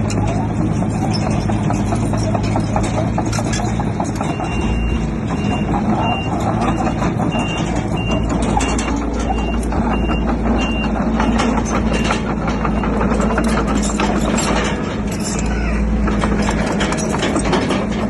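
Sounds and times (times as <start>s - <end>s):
diesel engine under load: 0.0s - 18.0s
steady clanking: 0.0s - 18.0s
reversing alarm beeping: 4.2s - 14.1s.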